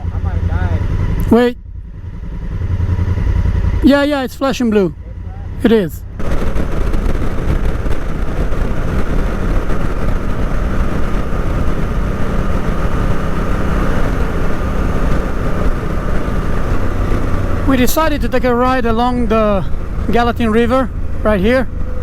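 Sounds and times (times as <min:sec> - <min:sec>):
motorcycle engine drone: 0:00.0 - 0:22.0
wind rush over microphone: 0:06.0 - 0:22.0.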